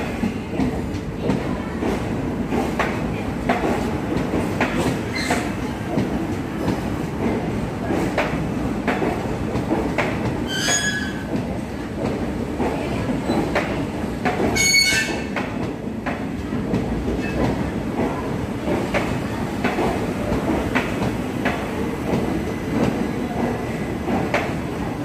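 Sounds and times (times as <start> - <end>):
high-pitched metallic squeals: 10.5 - 11.2.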